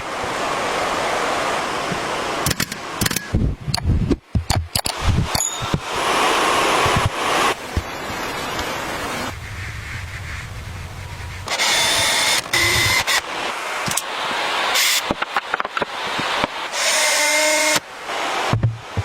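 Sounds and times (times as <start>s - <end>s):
sharp clicks and knocks: 2.5s - 5.8s
power drill whirring: 11.5s - 14.0s, 14.7s - 15.1s, 16.7s - 17.8s.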